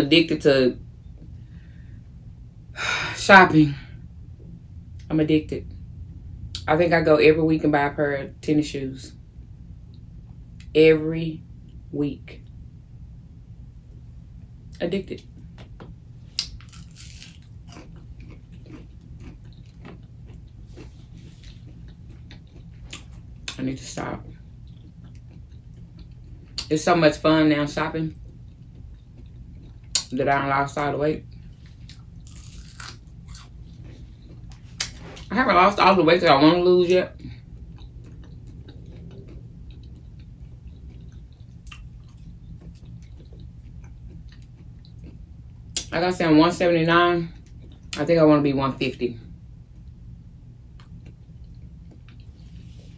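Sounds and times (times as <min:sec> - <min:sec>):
low steady hum: 0:00.0 - 0:52.9
person chewing food: 0:15.5 - 0:23.6, 0:24.2 - 0:26.6, 0:28.1 - 0:30.1, 0:31.3 - 0:35.3, 0:37.2 - 0:45.8, 0:47.4 - 0:48.0, 0:50.8 - 0:52.9.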